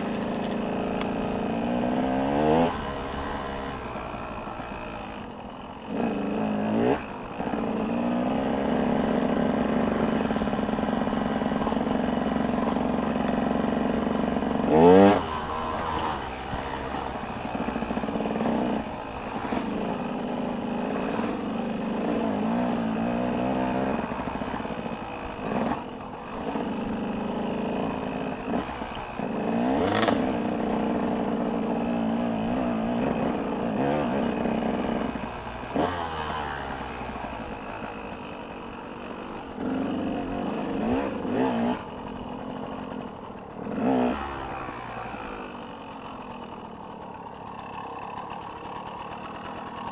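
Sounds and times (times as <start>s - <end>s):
motocross bike engines revving: 0.0s - 49.9s
sharp crack: 29.8s - 30.4s.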